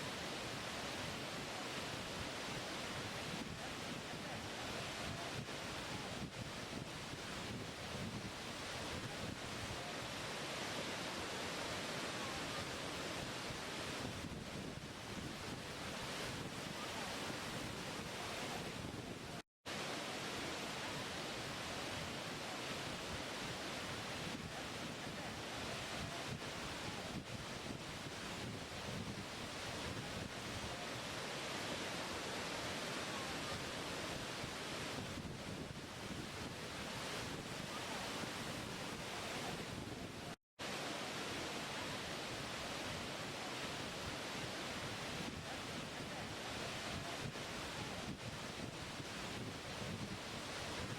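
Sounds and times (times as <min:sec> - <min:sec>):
waterfall rushing: 0:09.7 - 0:14.0, 0:29.5 - 0:35.0, 0:40.6 - 0:48.0.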